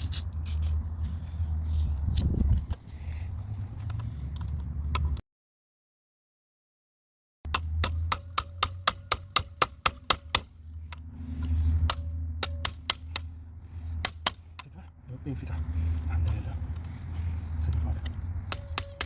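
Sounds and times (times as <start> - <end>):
hammer striking metal: 7.5 - 10.5, 11.8 - 13.4, 18.4 - 19.0.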